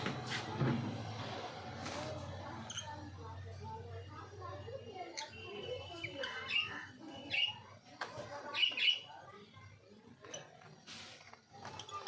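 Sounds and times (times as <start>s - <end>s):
parrots calling: 5.2s - 7.7s, 8.5s - 9.1s.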